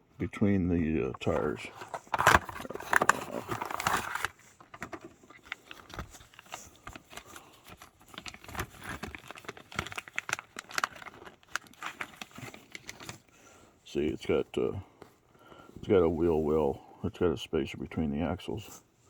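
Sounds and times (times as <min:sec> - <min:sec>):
plastic parts clicking: 0:01.2 - 0:06.2
packaging crinkling: 0:01.2 - 0:13.3.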